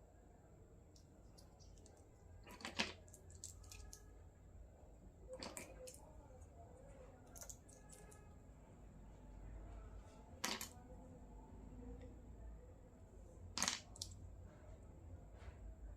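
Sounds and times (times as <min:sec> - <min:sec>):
toy pieces clicking and rustling: 0:01.3 - 0:04.0, 0:05.4 - 0:06.0, 0:07.3 - 0:08.2.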